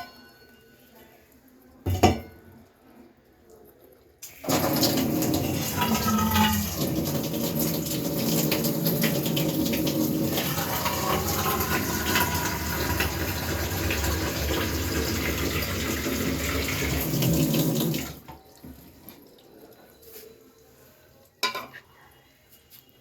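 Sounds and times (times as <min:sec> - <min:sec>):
water running: 0:01.8 - 0:20.2.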